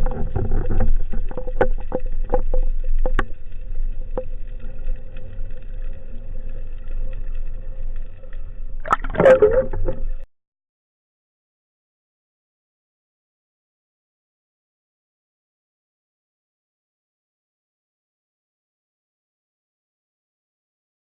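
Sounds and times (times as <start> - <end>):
gurgling rush of water: 0.0 - 10.0
steady underwater hum: 0.0 - 10.3
underwater clicks: 8.8 - 10.2.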